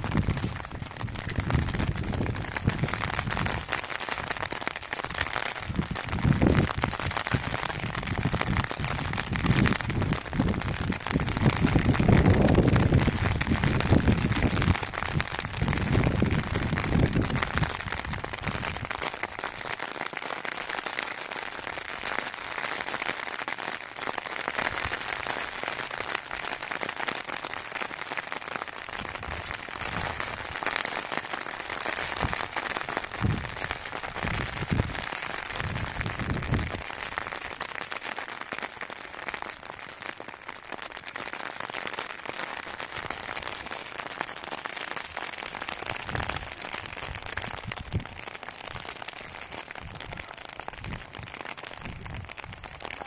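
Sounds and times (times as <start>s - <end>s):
wind gusts on microphone: 0.0s - 3.6s, 5.6s - 18.9s, 33.2s - 36.8s, 47.1s - 48.2s, 49.8s - 52.8s
steady rain hissing: 0.0s - 53.0s.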